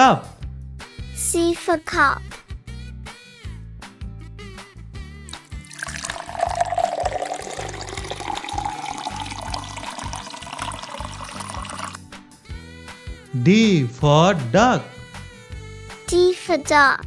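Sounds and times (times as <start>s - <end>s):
liquid pouring into a cup: 5.3s - 12.0s.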